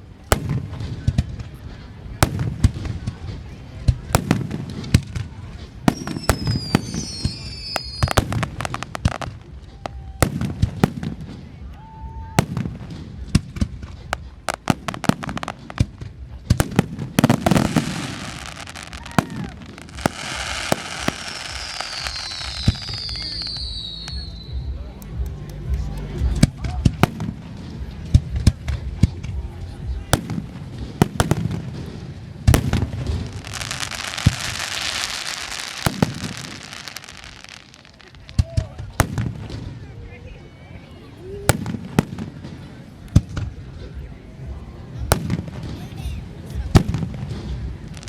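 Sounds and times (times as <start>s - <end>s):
fireworks banging and crackling: 0.0s - 48.0s.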